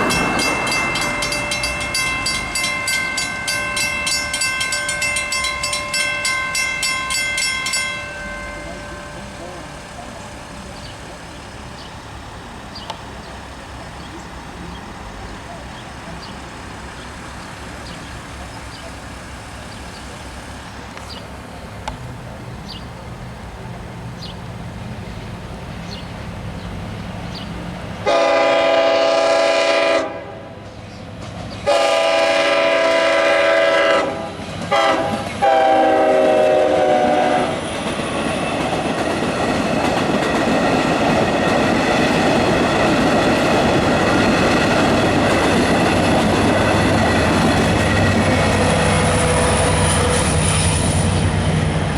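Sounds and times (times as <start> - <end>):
train wheels rumbling on rail: 0.0 - 51.9
train horn blasts: 28.0 - 30.6, 31.6 - 37.6.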